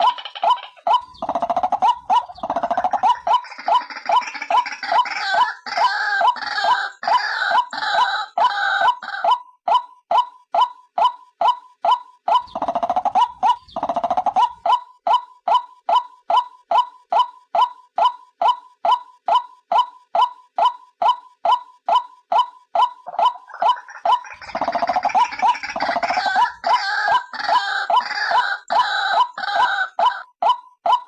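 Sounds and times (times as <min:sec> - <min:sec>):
chorus of harsh croaking calls: 0:00.0 - 0:09.4, 0:12.3 - 0:14.8, 0:21.9 - 0:30.3.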